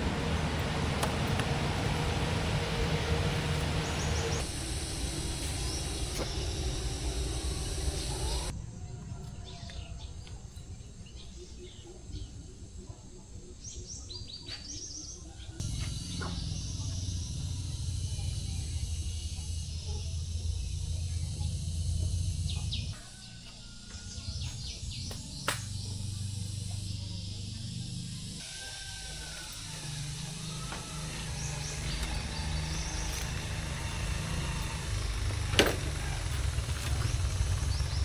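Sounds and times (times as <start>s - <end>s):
low rumble: 0.0s - 8.7s, 15.6s - 23.0s, 29.9s - 38.0s
small birds chirping: 0.0s - 38.0s.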